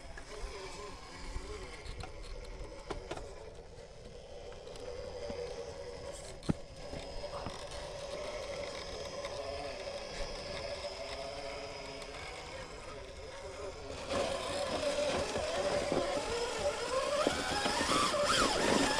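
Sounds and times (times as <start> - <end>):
rc truck motor whining: 0.0 - 18.9.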